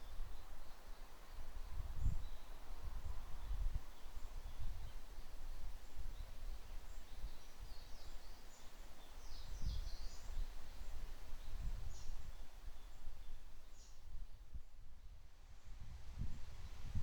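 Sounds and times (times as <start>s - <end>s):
wind through forest canopy: 0.0s - 17.0s
wind gusts rumbling on microphone: 15.6s - 17.0s.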